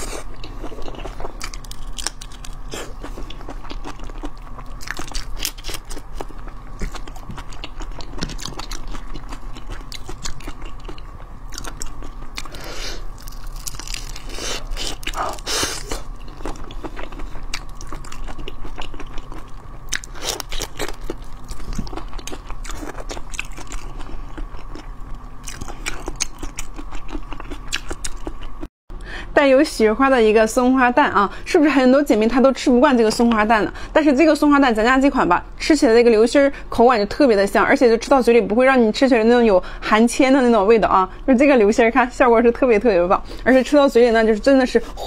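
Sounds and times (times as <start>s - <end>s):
crunching shrimp shells: 0.3s - 28.6s.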